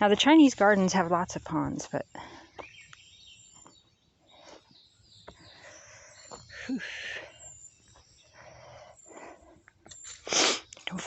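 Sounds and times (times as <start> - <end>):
faint birds chirping: 0.0 - 11.0
footsteps on a trail: 2.5 - 10.2.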